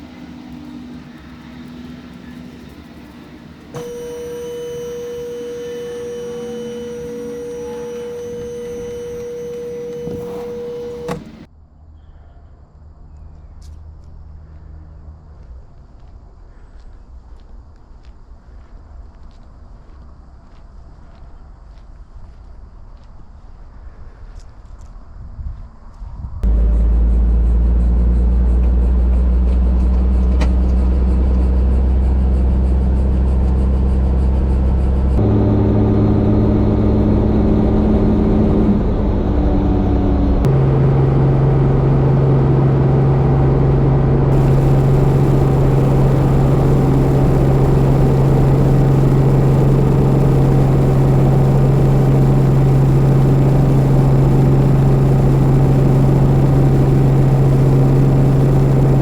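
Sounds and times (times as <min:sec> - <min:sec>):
helicopter engine and rotor drone: 0:00.0 - 0:11.5, 0:26.5 - 0:59.0.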